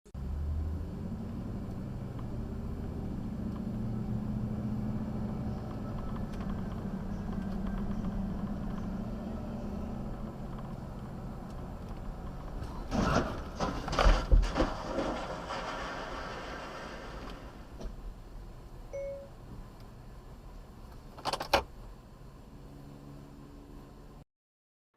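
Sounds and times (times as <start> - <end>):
car engine running: 0.8 - 13.6
loud knocks and bangs: 12.8 - 17.3.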